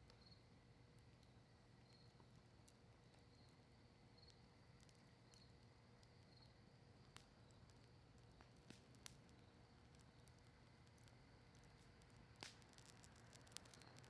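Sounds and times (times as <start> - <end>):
campfire crackling: 7.0 - 14.0.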